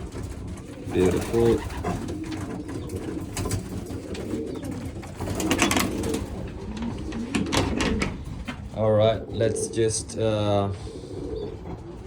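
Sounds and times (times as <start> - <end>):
birds pecking at grain: 0.0 - 12.0
pigeons cooing: 0.0 - 12.0.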